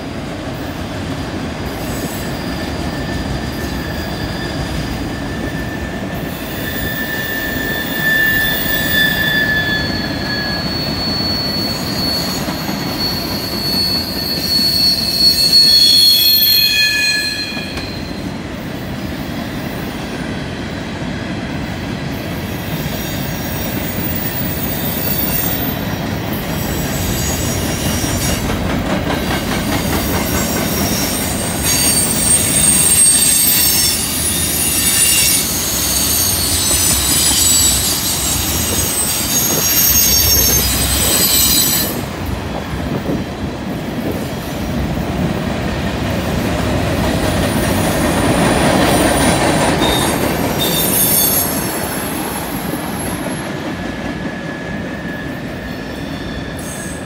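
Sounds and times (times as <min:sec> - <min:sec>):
wheels rumbling on rail: 0:00.0 - 0:57.0
high-pitched wheel squeals: 0:01.8 - 0:18.3, 0:29.9 - 0:42.1, 0:49.8 - 0:53.4, 0:54.4 - 0:57.0.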